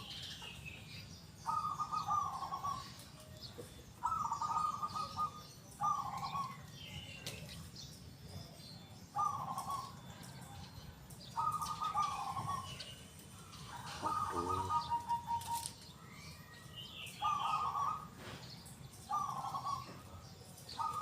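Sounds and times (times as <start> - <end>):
small birds chirping faintly: 0.0 - 21.0
dove cooing: 1.4 - 7.3, 9.1 - 10.6, 11.3 - 15.9, 17.1 - 18.4, 19.0 - 21.0.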